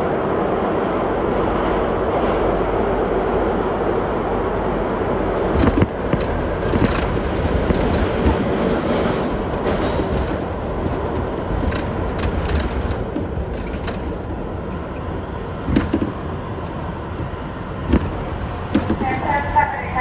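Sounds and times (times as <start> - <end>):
subway car running on track: 0.0 - 20.0
wheels knocking over rails: 5.4 - 19.6.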